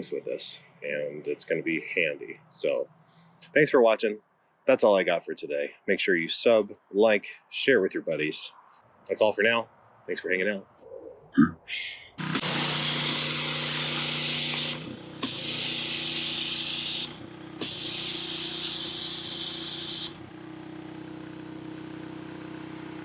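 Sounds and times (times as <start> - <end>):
spray gun blasting water: 12.2 - 20.2
pressure washer engine droning: 12.2 - 23.0.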